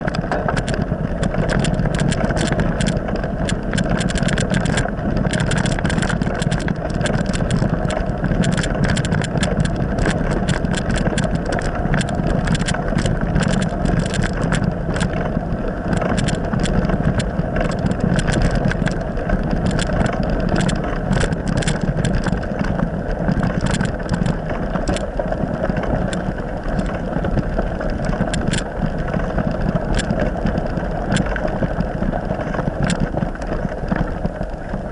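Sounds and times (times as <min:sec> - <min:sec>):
sharp clicks and rattles: 0:00.0 - 0:34.9
vehicle engine running: 0:00.0 - 0:34.9.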